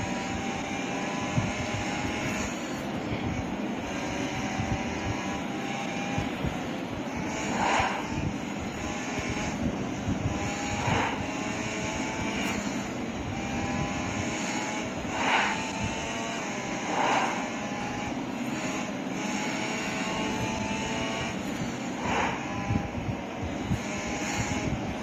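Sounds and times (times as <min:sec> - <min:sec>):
motorcycle engine running: 0:00.0 - 0:25.0
wind and road noise: 0:00.0 - 0:25.0
brief whooshes: 0:07.5 - 0:08.2, 0:15.1 - 0:15.6, 0:16.9 - 0:17.5.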